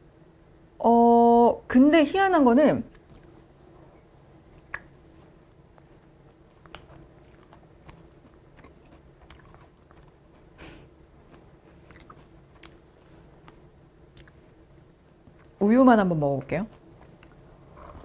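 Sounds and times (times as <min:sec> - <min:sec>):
chewing cereal: 0:04.6 - 0:10.6, 0:11.2 - 0:15.6, 0:16.7 - 0:18.0.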